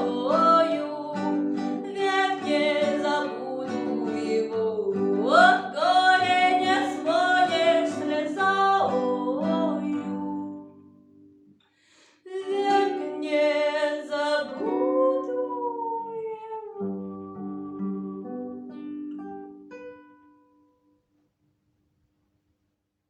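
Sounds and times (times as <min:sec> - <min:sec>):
woman singing with vibrato: 0:00.0 - 0:10.8, 0:12.2 - 0:18.6
acoustic guitar: 0:00.0 - 0:22.6.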